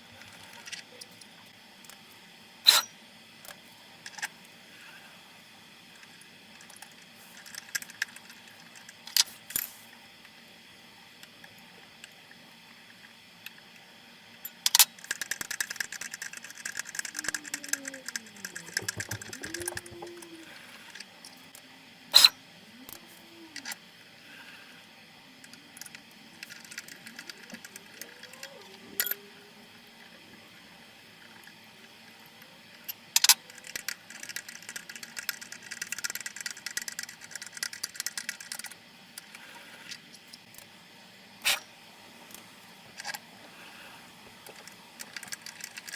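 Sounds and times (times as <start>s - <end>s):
rapid rattling clicks of tap wrench: 14.4s - 20.3s, 33.2s - 40.0s
stepper motors whining: 14.4s - 37.7s.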